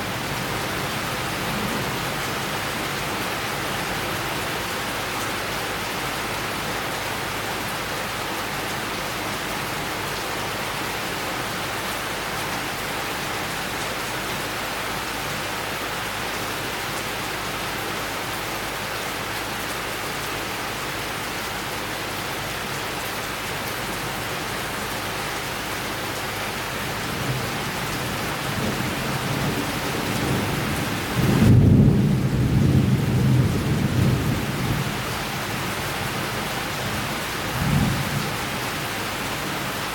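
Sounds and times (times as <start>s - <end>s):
steady rain: 0.0s - 39.9s
rolling thunder: 28.6s - 35.1s.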